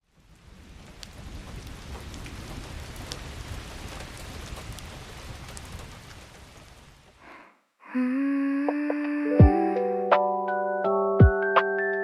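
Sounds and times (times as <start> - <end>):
raindrops tapping close by: 0.0 - 7.2
steady rain falling: 0.0 - 7.5.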